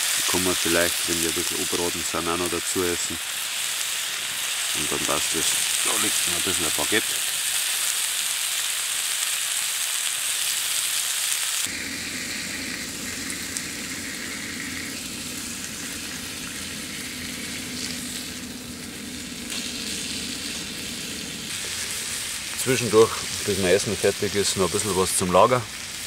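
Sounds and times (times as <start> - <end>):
fish and onions sizzling in a pan: 0.0 - 26.0
low rumble: 11.7 - 23.6.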